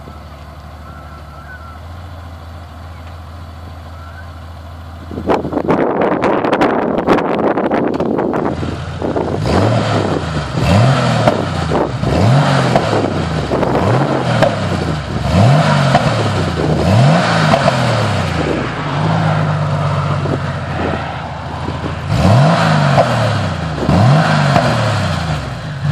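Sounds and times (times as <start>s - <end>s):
car exhaust revving: 0.0s - 25.9s
wind noise on microphone: 5.1s - 15.4s, 16.0s - 24.8s.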